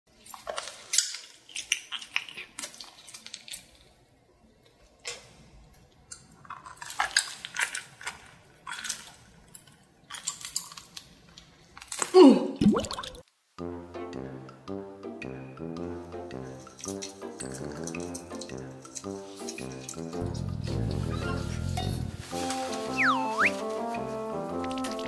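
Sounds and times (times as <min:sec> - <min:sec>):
wet mouth sound falling in pitch: 0:22.9 - 0:23.6.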